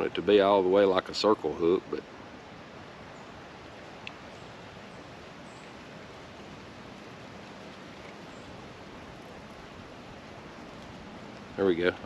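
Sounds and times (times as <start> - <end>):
soft outdoor hiss: 0.0 - 12.0.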